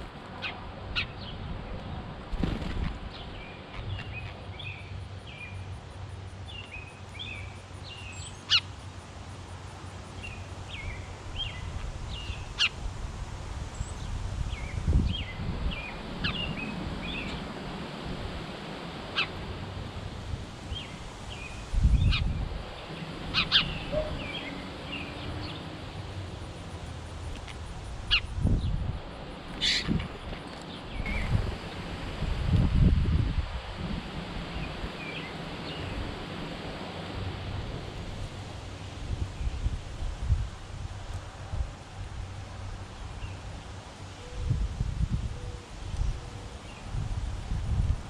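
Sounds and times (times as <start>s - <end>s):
small birds chirping: 2.4s - 5.8s, 20.7s - 26.5s, 27.2s - 31.4s.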